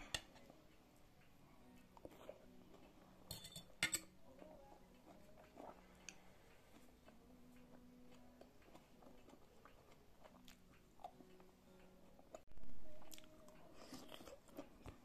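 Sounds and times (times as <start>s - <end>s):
person chewing bread: 4.9s - 15.0s.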